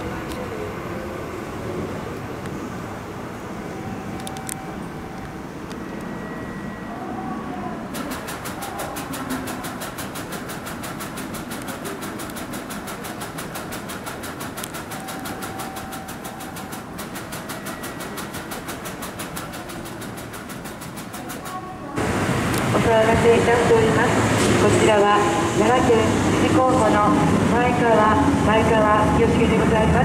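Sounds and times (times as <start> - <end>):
train rumble: 0.0 - 30.0
rapid even wheel clatter: 8.0 - 21.6.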